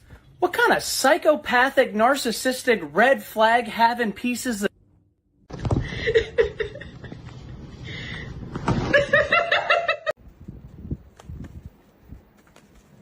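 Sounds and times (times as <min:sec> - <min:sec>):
laughter: 0:05.8 - 0:07.5, 0:08.8 - 0:10.2.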